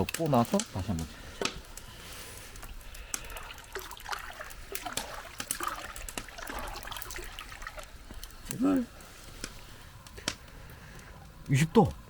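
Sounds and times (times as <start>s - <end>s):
water trickling and splashing: 2.1s - 11.6s.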